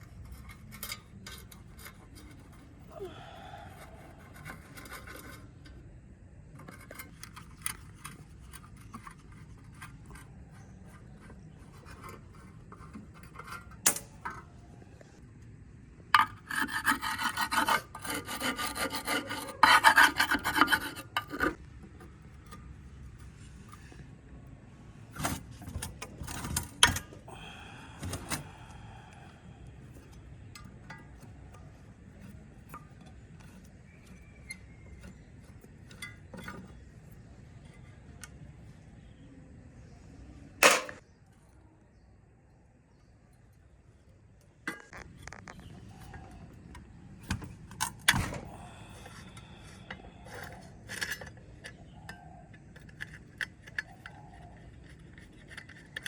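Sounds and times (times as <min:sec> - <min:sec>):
hand tool rasping against metal: 0:16.2 - 0:21.6.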